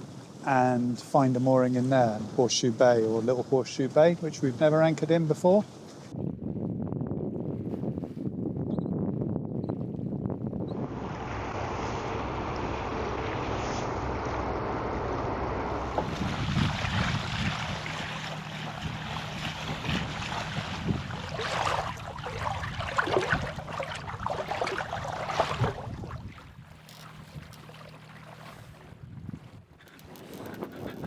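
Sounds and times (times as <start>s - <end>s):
water rushing along a hull: 0.0s - 6.6s, 9.9s - 31.0s
wind on microphone: 5.4s - 27.8s, 28.4s - 31.0s
steady low hum: 10.6s - 28.5s.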